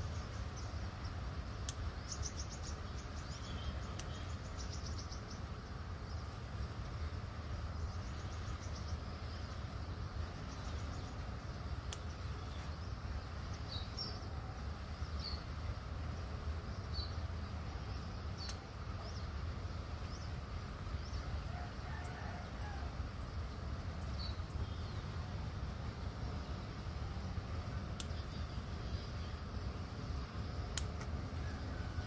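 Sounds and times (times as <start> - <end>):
small bird chirping: 0.0 - 6.4.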